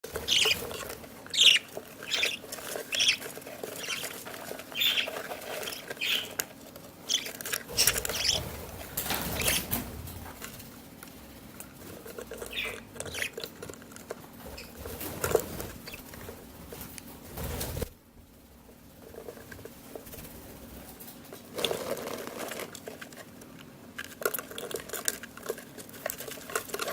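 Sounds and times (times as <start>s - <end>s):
chicks cheeping: 0.0s - 10.4s, 12.4s - 13.6s, 14.4s - 16.1s.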